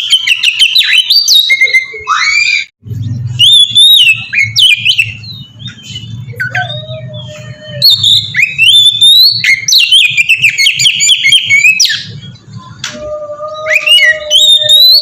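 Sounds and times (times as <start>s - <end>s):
bird singing whistles and chirps: 3.3s - 12.8s, 13.4s - 15.0s.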